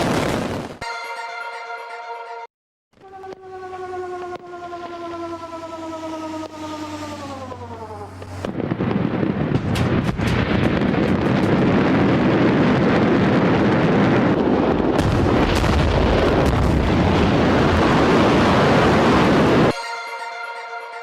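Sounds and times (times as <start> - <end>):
fireworks bangs and crackles: 0.0 - 0.8, 7.5 - 19.7
fireworks rumbling roar: 0.0 - 0.8, 3.0 - 19.8
music: 0.8 - 2.5, 19.8 - 21.0.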